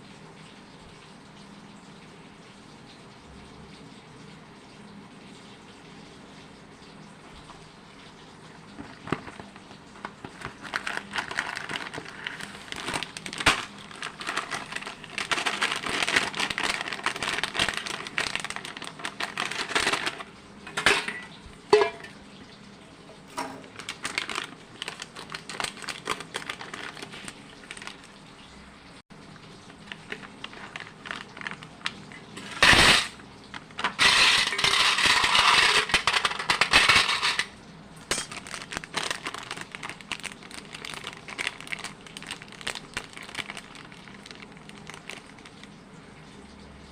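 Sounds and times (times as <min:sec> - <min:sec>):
crackling: 0:08.7 - 0:20.4, 0:23.6 - 0:28.2, 0:29.5 - 0:37.5, 0:38.1 - 0:45.7
dishes and utensils clinking: 0:19.6 - 0:22.2, 0:23.3 - 0:23.8, 0:33.8 - 0:38.4.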